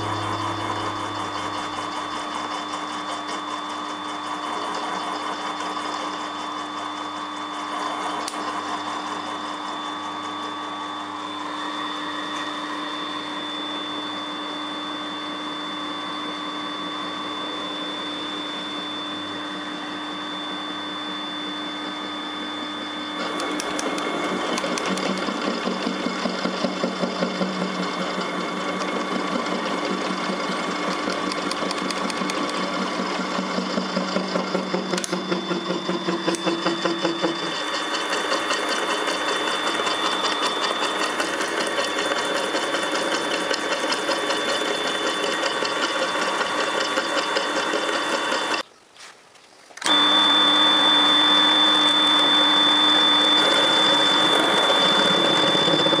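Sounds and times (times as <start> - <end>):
milling machine cutting metal: 0.0 - 10.8, 22.0 - 48.6, 49.8 - 56.0.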